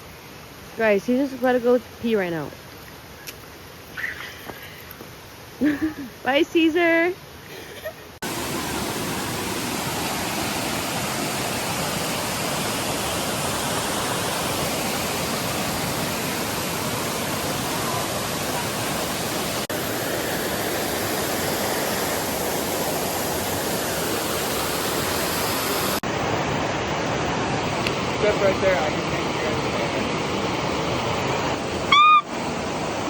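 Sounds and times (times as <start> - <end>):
waterfall rushing: 8.2 - 33.0.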